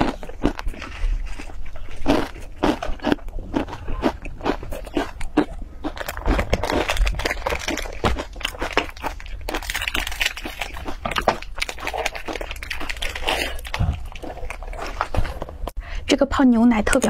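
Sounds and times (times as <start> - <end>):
crunchy chewing of snack: 0.0 - 15.8
plastic wrapper crinkling: 5.9 - 15.7.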